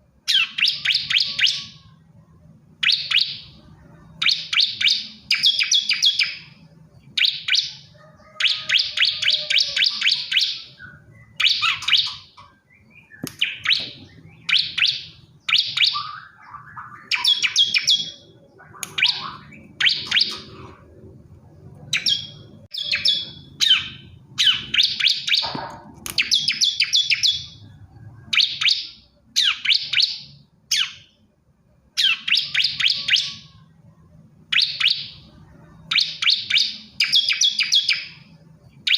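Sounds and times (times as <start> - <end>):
bird chirping rapidly: 0.3 - 2.0, 2.8 - 31.3, 32.0 - 33.6, 34.5 - 38.9.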